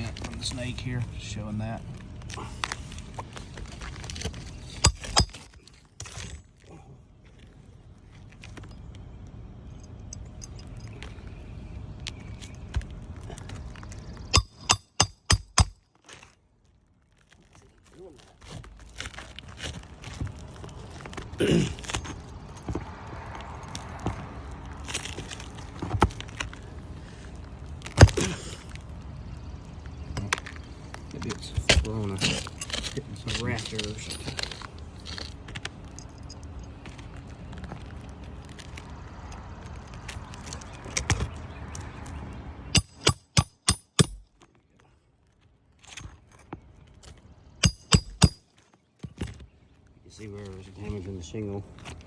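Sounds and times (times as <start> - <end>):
hammer striking metal: 4.8 - 5.4, 14.3 - 15.8, 42.7 - 44.3, 47.6 - 48.4.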